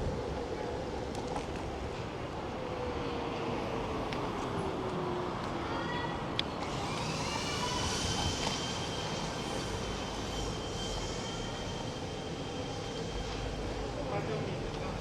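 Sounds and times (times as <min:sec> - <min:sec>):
scooter rumble and wind noise: 0:00.0 - 0:12.3
electric motor whine: 0:06.6 - 0:11.7.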